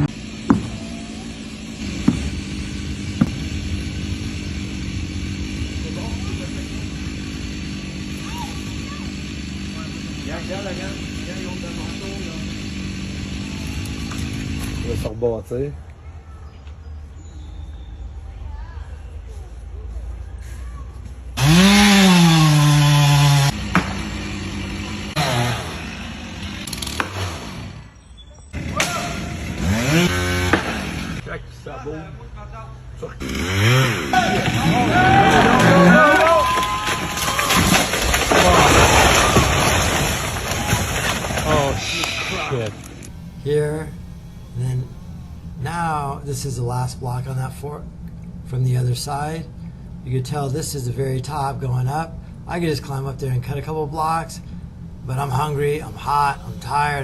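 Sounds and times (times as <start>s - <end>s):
chainsaw revving: 0.0s - 15.1s, 21.4s - 28.0s, 28.6s - 31.2s, 33.2s - 47.4s
engine running: 0.0s - 15.2s, 19.6s - 31.6s, 32.2s - 57.0s
sharp knocks: 0.5s - 0.8s, 2.0s - 2.4s.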